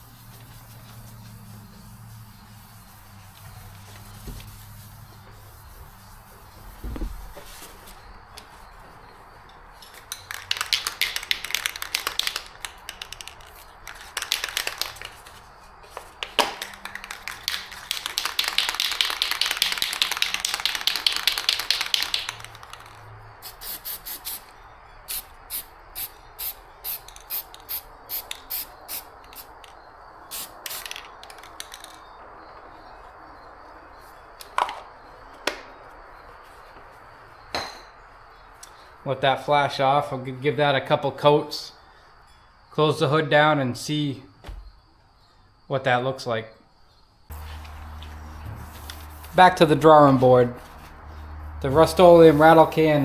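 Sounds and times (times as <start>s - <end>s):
aerosol spray can hissing: 0.0s - 7.5s, 10.3s - 15.4s, 16.4s - 24.5s, 25.1s - 29.6s, 30.3s - 32.0s, 47.3s - 50.0s, 50.6s - 53.0s
spray can mixing ball clacking: 9.9s - 24.4s, 25.6s - 29.7s, 30.3s - 32.0s, 47.3s - 51.0s, 51.6s - 53.0s.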